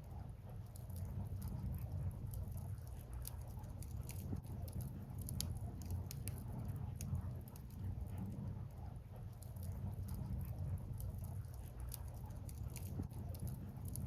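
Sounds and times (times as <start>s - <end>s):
fire low rumble: 0.0s - 14.0s
firewood crackling and popping: 0.7s - 8.2s, 9.3s - 14.0s.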